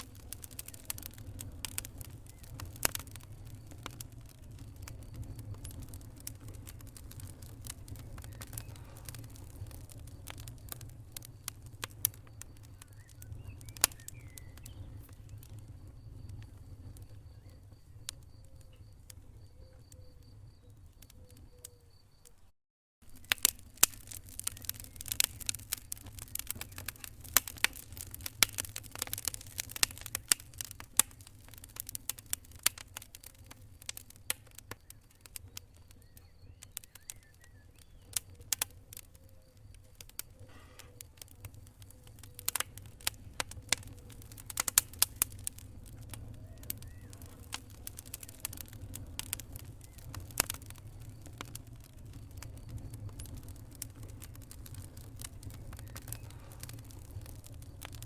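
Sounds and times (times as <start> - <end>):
low rumble of fire: 0.0 - 58.0
wood fire crackling and popping: 0.0 - 58.0.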